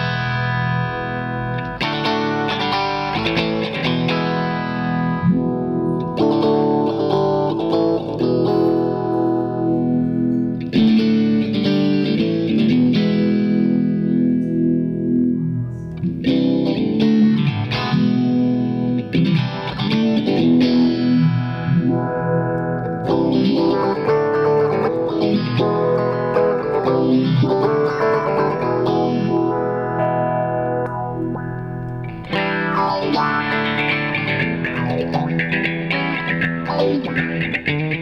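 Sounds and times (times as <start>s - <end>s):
electric guitar chords with phaser: 0.0s - 38.0s.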